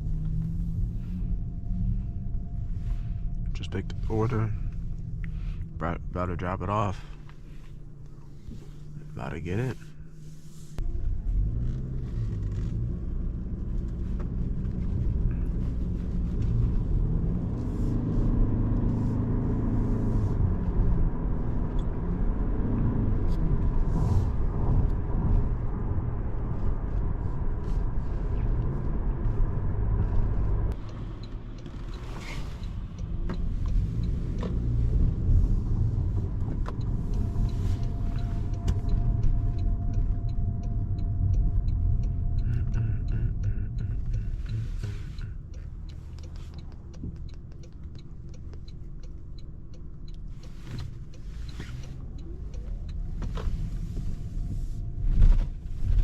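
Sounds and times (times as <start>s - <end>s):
car cabin road rumble: 0.0s - 56.0s.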